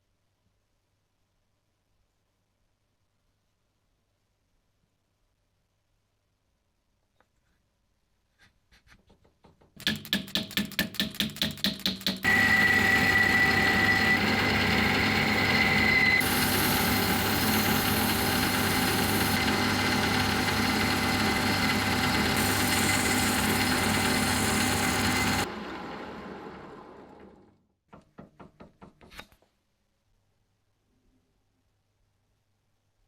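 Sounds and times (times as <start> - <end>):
electric workshop machine running: 12.2 - 27.6.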